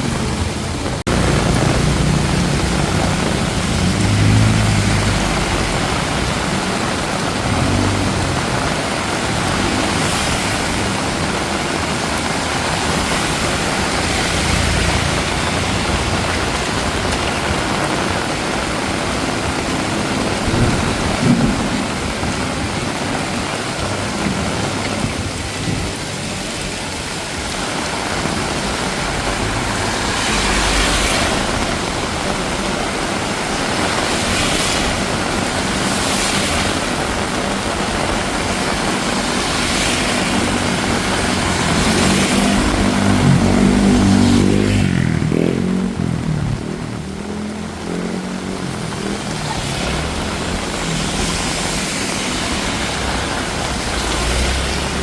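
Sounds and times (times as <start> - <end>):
heavy rain falling: 0.0 - 55.0
tyres swishing on wet street: 0.0 - 55.0
vehicle engine passing: 1.1 - 6.8, 28.1 - 34.8, 39.1 - 55.0.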